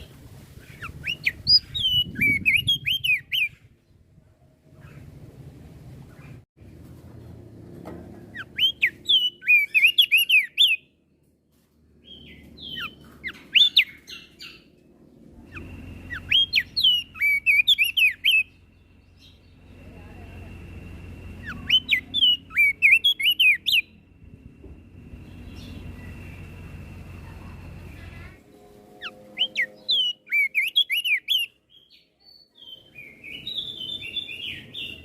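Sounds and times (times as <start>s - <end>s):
bird twittering song: 0.0s - 4.1s, 8.3s - 11.0s, 12.0s - 20.4s, 21.0s - 27.2s, 27.8s - 35.0s
faint steady high tone: 13.7s - 35.0s.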